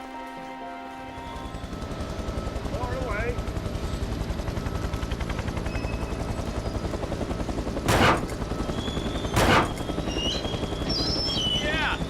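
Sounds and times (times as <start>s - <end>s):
cartoon helicopter rotor chopping: 5.2s - 12.0s.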